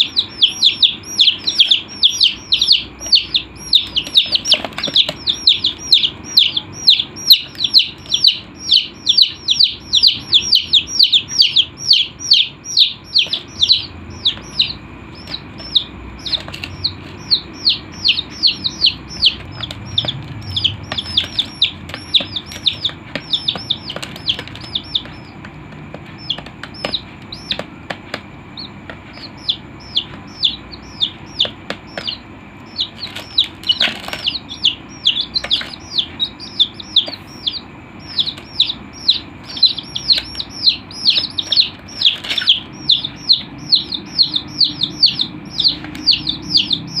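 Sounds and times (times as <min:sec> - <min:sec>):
baby chicks peeping: 0:00.0 - 0:47.0.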